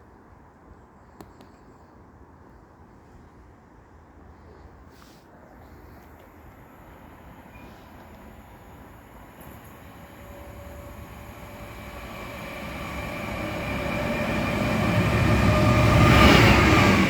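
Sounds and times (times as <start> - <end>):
train passing with rumble: 6.2 - 17.0
train whine: 6.2 - 17.0.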